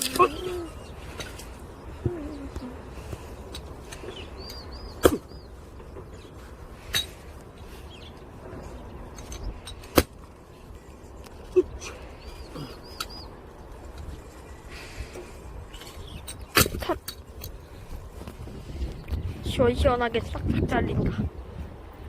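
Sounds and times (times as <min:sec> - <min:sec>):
bird chirping: 0:00.0 - 0:09.9, 0:10.5 - 0:16.6
axe chopping firewood: 0:05.0 - 0:05.4, 0:09.7 - 0:10.3, 0:16.4 - 0:17.2.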